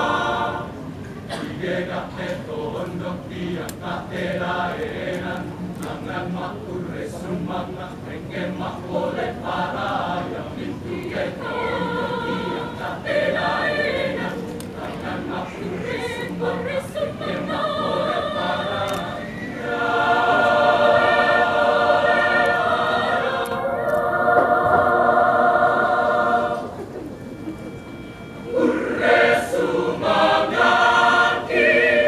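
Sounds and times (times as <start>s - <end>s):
choir singing in parts: 0.0s - 26.9s, 28.4s - 32.0s.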